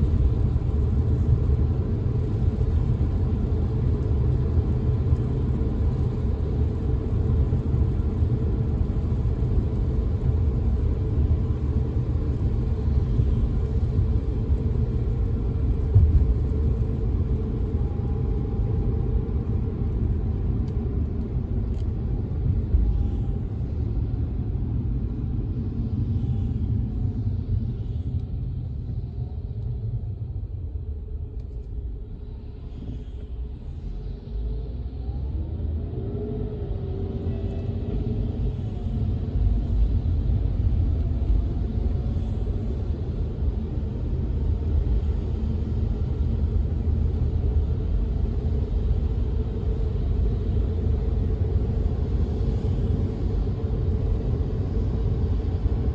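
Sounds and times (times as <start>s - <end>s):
car road rumble: 0.0s - 55.9s.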